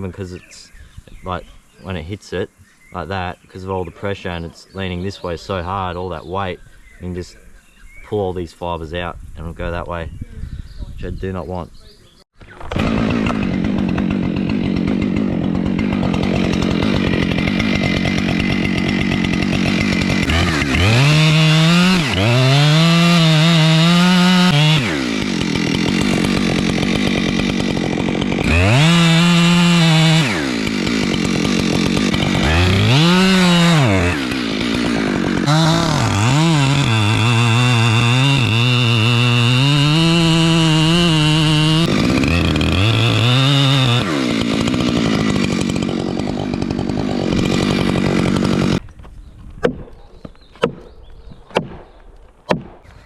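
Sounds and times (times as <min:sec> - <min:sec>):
chainsaw idling and revving: 0:12.4 - 0:48.9.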